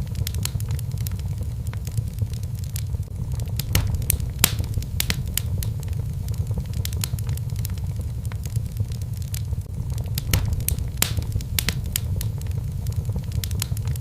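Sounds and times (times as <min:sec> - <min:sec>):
fire crackling and popping: 0:00.0 - 0:14.0
low fire rumble: 0:00.0 - 0:14.0.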